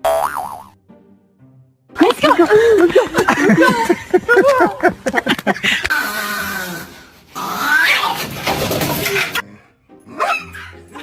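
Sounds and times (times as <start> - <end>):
dog crying: 10.1 - 11.0.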